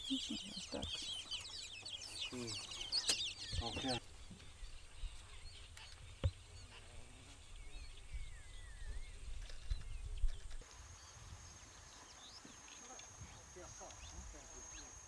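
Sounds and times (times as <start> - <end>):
faint whistled bird calls: 0.0 - 15.0.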